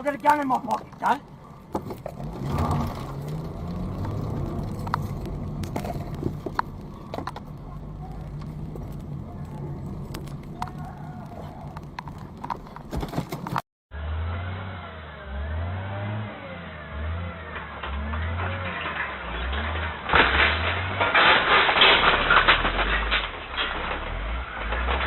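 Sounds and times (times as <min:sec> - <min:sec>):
dull vehicle engine: 0:00.0 - 0:25.0.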